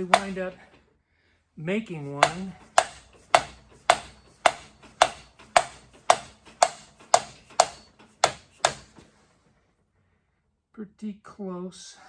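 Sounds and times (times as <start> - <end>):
hammer blows on metal: 0.0 - 0.6, 2.0 - 9.0.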